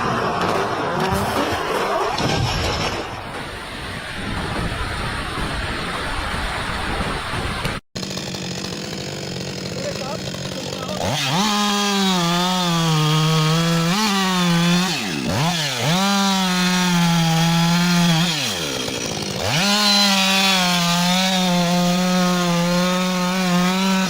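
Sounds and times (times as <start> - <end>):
chainsaw cutting timber: 7.1 - 24.0.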